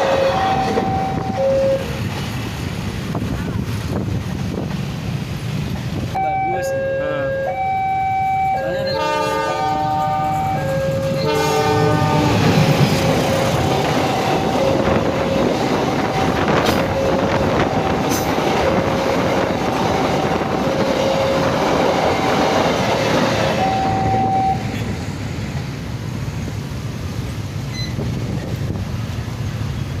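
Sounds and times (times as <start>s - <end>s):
crossing alarm beeping two tones: 0.0s - 2.0s, 6.2s - 18.8s, 20.2s - 22.7s, 23.4s - 24.8s
road traffic: 0.0s - 30.0s
train cars rolling past: 0.0s - 30.0s.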